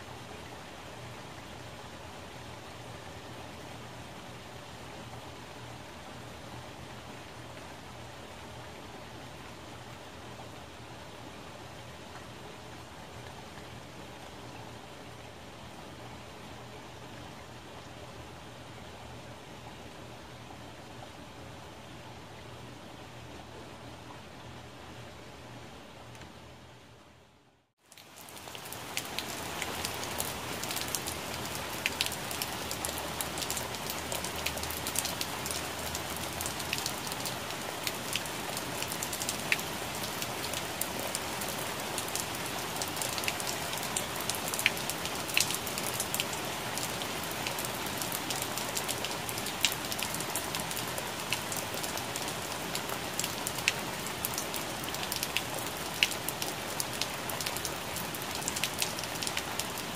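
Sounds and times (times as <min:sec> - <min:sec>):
raindrops ticking on leaves: 0:27.8 - 0:59.9.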